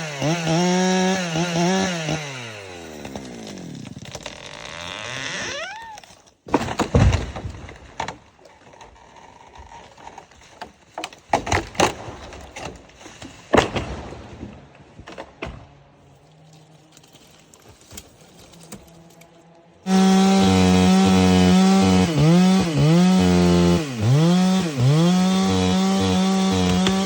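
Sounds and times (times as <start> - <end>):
wood cracking and knocking: 3.0 - 15.9, 24.2 - 27.0.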